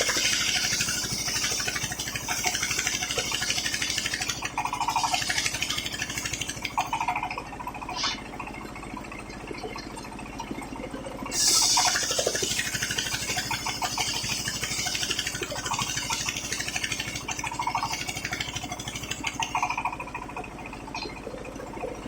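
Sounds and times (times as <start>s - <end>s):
circular saw blade cutting wood: 0.0s - 6.5s
engine droning: 0.0s - 22.0s.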